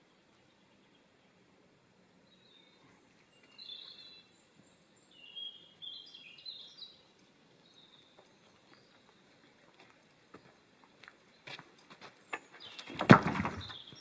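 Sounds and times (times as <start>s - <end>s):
small bird chirping: 2.2s - 13.0s.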